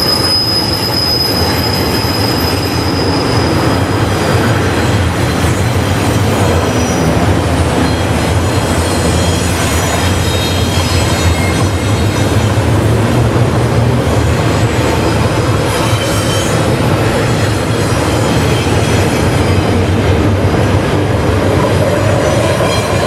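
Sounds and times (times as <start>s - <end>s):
faint wheel squeal: 0.0s - 4.2s, 6.6s - 12.4s, 15.6s - 16.8s
train wheels rumbling on rail: 0.0s - 23.0s.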